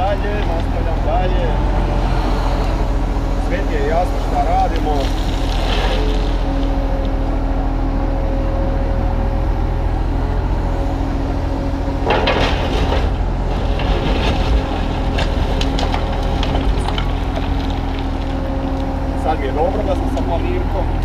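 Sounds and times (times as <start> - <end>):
excavator diesel engine running: 0.0 - 21.0
stone and rubble scraping: 4.0 - 6.8, 12.1 - 18.8.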